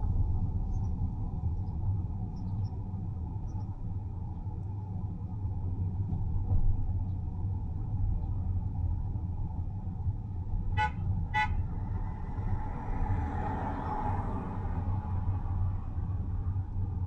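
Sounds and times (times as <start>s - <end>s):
car driving rumble: 0.0s - 17.0s
vehicle horn toots: 10.7s - 12.2s.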